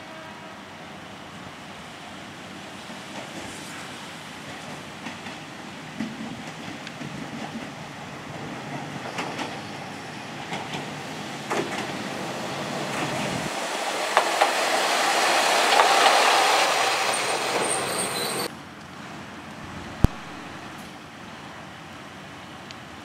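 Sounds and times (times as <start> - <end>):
railcar passing rumble: 0.0 - 23.0
wheels clicking over rail joints: 4.4 - 18.5
high wheel squeal: 13.0 - 18.5.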